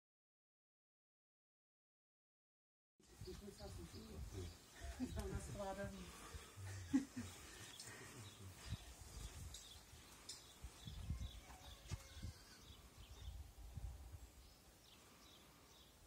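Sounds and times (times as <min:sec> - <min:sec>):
small bird chirping: 0:07.5 - 0:13.4.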